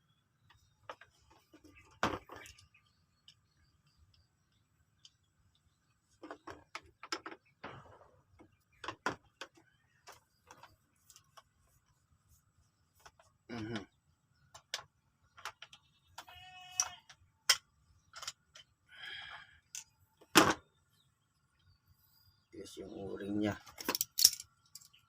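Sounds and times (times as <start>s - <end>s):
small parts clicking: 14.5s - 19.9s, 23.6s - 25.0s.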